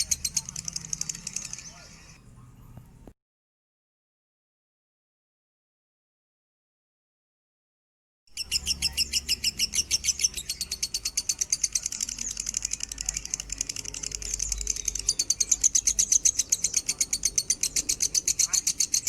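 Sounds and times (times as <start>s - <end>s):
bird chirping rapidly: 0.0s - 2.7s, 8.3s - 19.0s.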